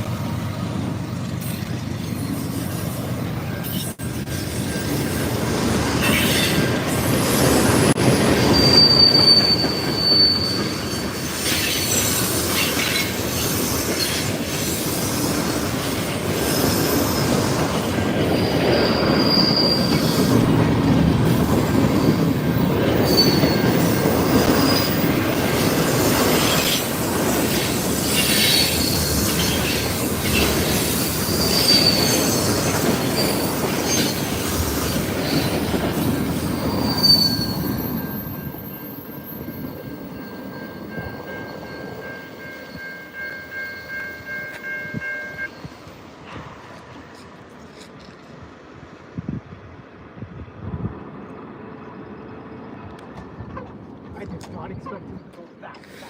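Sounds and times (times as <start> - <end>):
wheels clacking over rail joints: 0.0 - 45.1
high wheel squeals: 1.4 - 20.6, 21.3 - 46.0.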